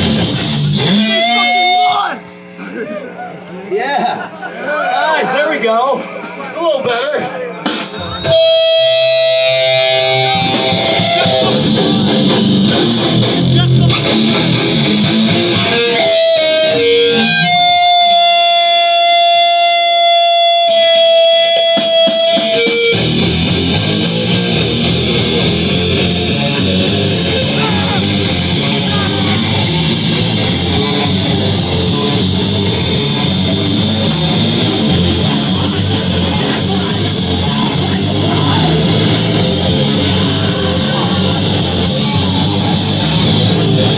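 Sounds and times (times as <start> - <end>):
electric guitar held notes: 0.0 - 2.5, 8.1 - 43.9
live rock band playing: 0.0 - 2.6, 5.9 - 43.9.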